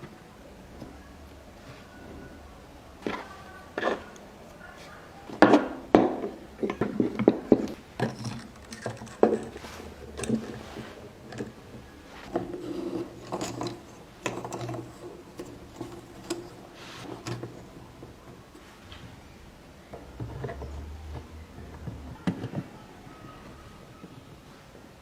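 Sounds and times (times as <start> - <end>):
hand tools scraping wood: 6.0 - 18.7.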